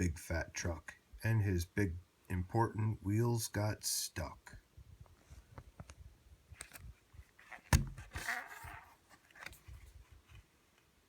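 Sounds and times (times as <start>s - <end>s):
handling rustle and taps: 6.6s - 10.9s.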